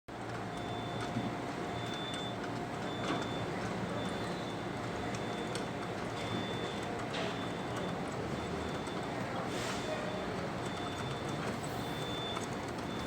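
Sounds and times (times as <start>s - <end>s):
truck engine humming: 10.2s - 13.0s.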